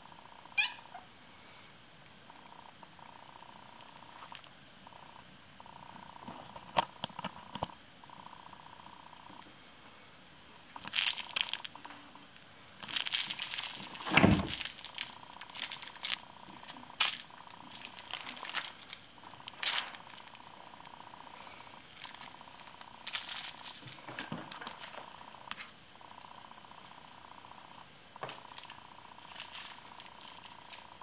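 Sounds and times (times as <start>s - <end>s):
kitten scratching and rustling: 12.8s - 21.1s, 21.8s - 25.8s, 28.3s - 31.0s
thump: 14.1s - 14.6s.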